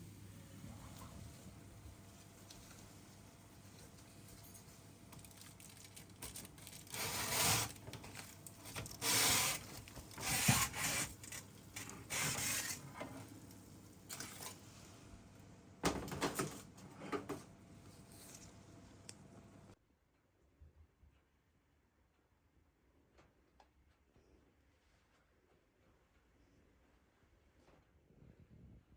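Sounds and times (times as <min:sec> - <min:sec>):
rubbing and scraping: 0:06.6 - 0:13.3.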